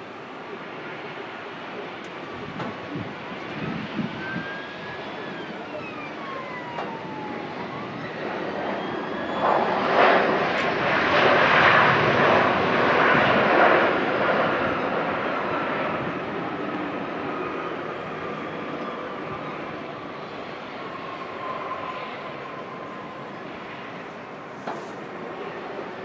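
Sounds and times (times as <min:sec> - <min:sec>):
jet engines roaring: 0:00.0 - 0:26.0
falling whistling engine tones: 0:03.8 - 0:10.6.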